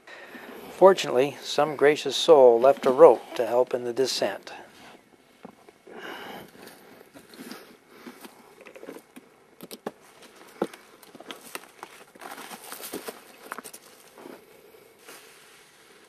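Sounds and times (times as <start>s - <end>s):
footsteps through dry leaves: 11.8s - 14.2s.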